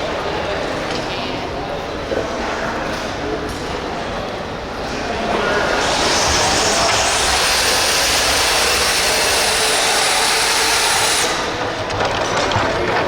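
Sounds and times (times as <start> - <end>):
radio-controlled vehicle running hard: 5.2 - 13.0.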